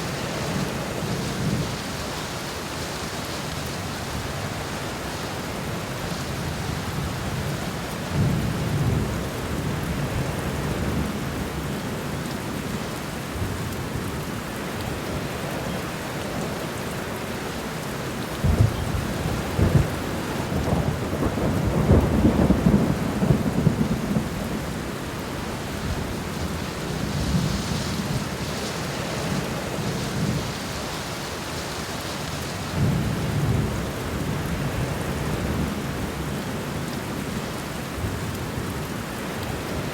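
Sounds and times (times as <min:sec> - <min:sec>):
steady rain falling: 0:00.0 - 0:39.9
thunder rumbling: 0:18.4 - 0:24.9.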